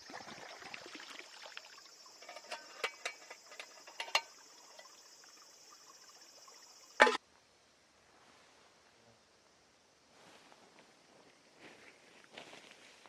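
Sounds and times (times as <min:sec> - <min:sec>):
crickets trilling: 0:00.0 - 0:07.2.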